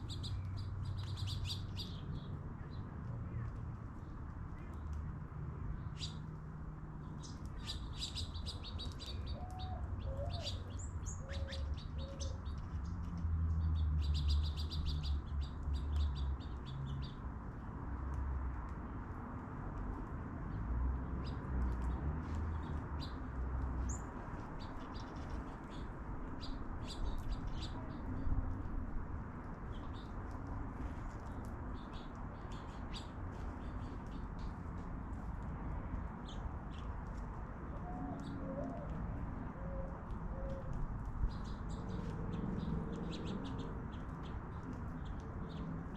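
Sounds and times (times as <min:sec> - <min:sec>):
small birds chirping: 0:00.0 - 0:06.4, 0:07.0 - 0:17.3, 0:20.4 - 0:28.7, 0:29.5 - 0:34.6, 0:40.0 - 0:45.9.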